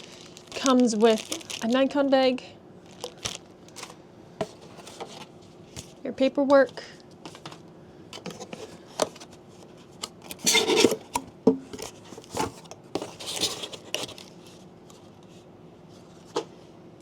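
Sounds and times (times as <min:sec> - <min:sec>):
paper and packaging rustling: 0:00.0 - 0:02.0, 0:02.8 - 0:06.0, 0:11.8 - 0:15.4.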